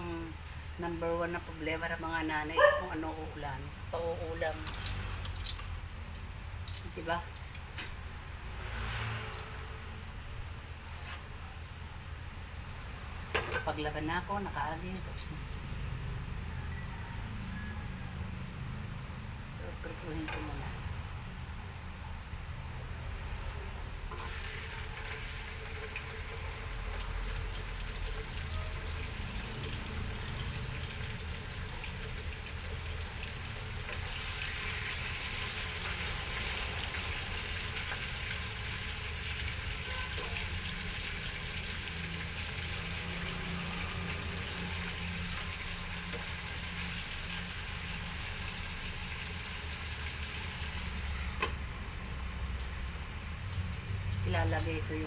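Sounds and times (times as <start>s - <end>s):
pork frying in oil: 0.0s - 55.0s.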